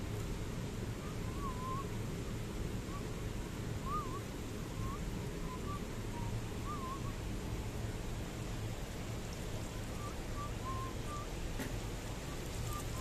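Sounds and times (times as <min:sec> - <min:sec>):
steady low background noise: 0:00.0 - 0:13.0
bird calling with wavering whistles: 0:01.0 - 0:02.0, 0:02.8 - 0:03.2, 0:03.8 - 0:07.3, 0:09.7 - 0:11.4, 0:12.2 - 0:13.0.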